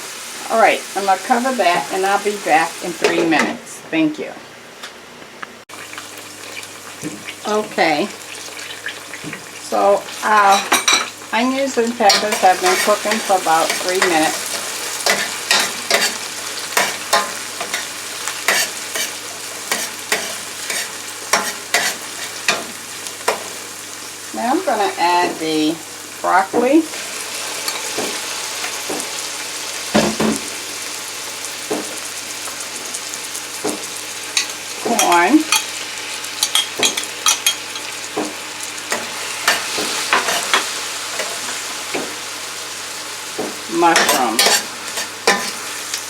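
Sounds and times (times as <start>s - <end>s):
vegetables sizzling in oil: 0.0s - 4.2s, 5.7s - 46.0s
utensil scraping a pan: 12.0s - 22.7s.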